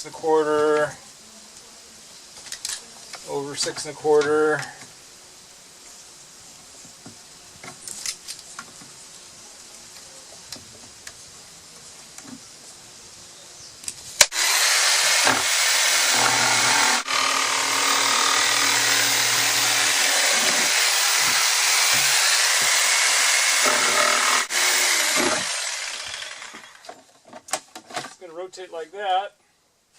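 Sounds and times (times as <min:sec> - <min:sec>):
power tool cutting plastic: 0:14.3 - 0:26.9.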